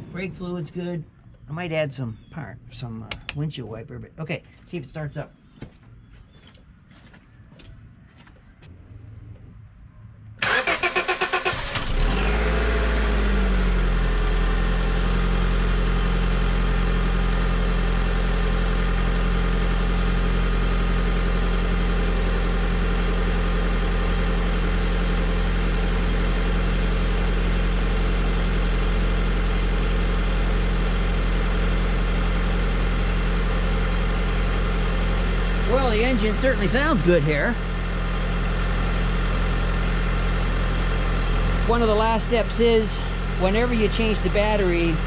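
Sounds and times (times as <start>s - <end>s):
car engine revving and idling: 10.4s - 45.0s.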